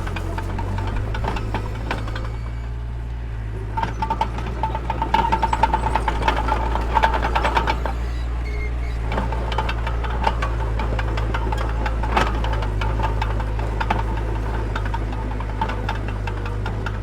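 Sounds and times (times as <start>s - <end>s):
metal rattling and clanking: 0.0s - 2.9s, 3.6s - 17.0s
diesel engine running: 0.0s - 17.0s
pulsing squeal: 1.4s - 2.8s, 5.3s - 9.4s.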